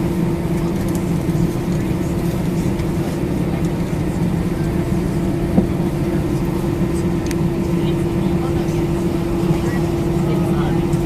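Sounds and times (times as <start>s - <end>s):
aircraft cabin hum: 0.0s - 11.0s.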